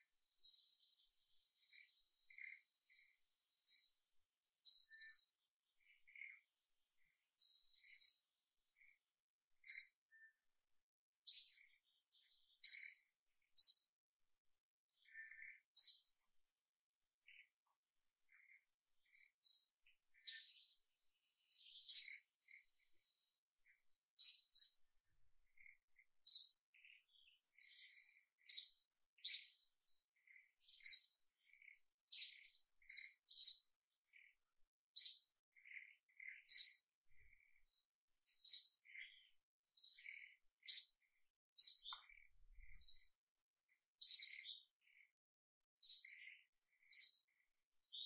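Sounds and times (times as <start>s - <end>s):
bird chirping high: 30.7s - 33.7s, 36.2s - 37.6s, 41.6s - 43.1s, 44.0s - 44.7s.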